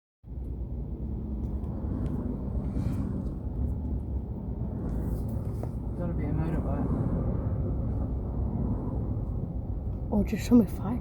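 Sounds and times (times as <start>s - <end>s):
vehicle engine rumbling: 0.3s - 10.1s.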